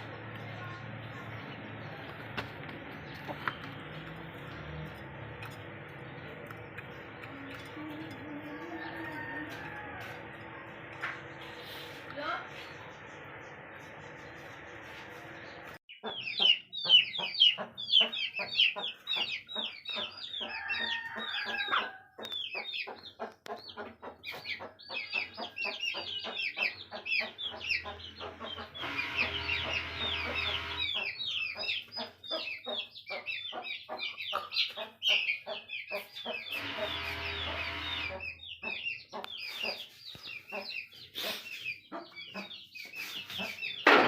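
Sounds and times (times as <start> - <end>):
chickens peeping: 0.0 - 44.0.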